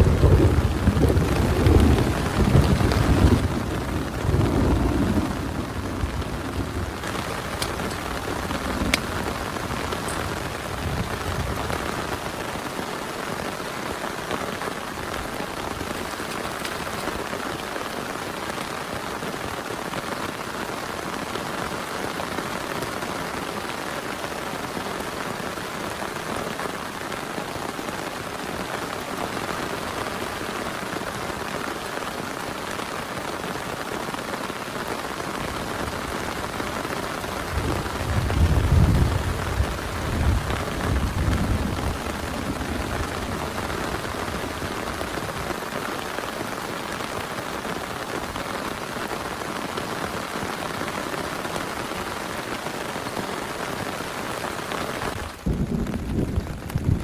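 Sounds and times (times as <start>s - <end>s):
thunder rumbling: 0.0s - 12.8s, 35.1s - 45.6s, 55.0s - 57.0s
heavy rain falling: 0.0s - 57.0s.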